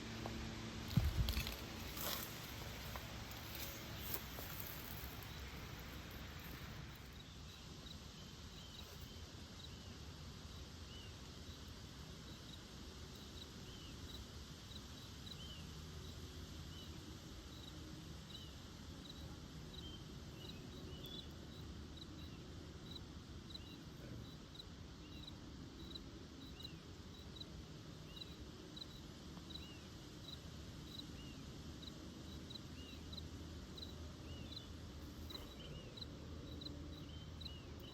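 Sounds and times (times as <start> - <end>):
soft arched insect chirp: 0.1 - 37.9.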